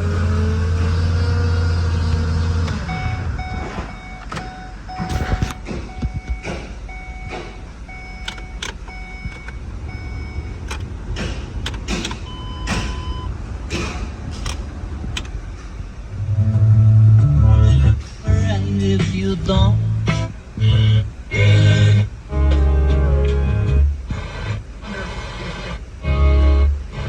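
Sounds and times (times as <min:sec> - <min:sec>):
low rumbling background: 0:00.0 - 0:27.0
short electronic beeps: 0:02.8 - 0:10.6, 0:12.2 - 0:13.3
clicks and knocks: 0:10.6 - 0:13.1.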